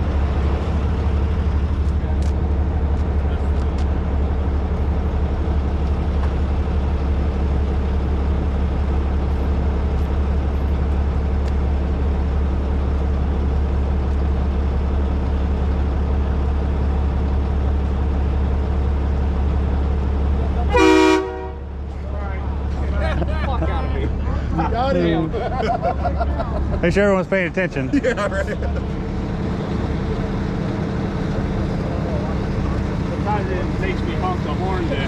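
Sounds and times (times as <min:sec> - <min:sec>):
diesel truck engine running: 0:00.0 - 0:35.0
short horn toot: 0:20.7 - 0:21.7.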